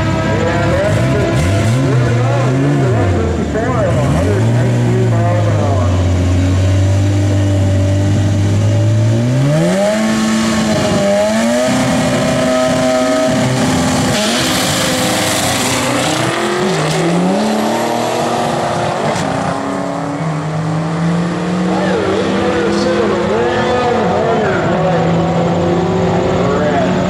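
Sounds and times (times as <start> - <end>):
car engine revving and accelerating: 0.0 - 27.0.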